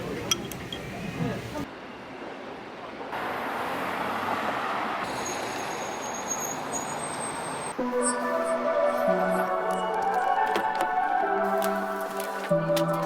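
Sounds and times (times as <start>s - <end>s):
road traffic hiss: 0.9s - 9.5s
music: 7.8s - 13.0s.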